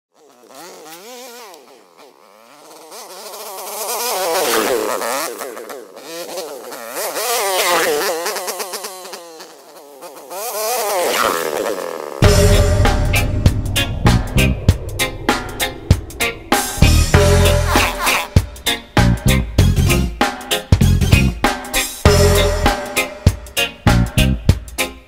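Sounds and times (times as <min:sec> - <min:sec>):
music with a beat: 0:16.6 - 0:25.0.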